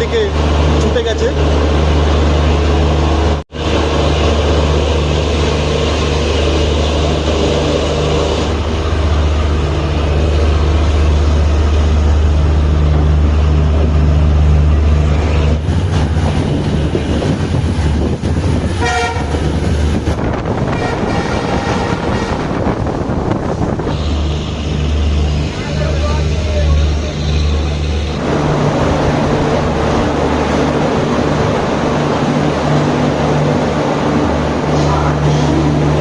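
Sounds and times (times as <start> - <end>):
train rumbling: 0.0 - 36.0
train horn toot: 18.8 - 19.5, 20.6 - 22.8.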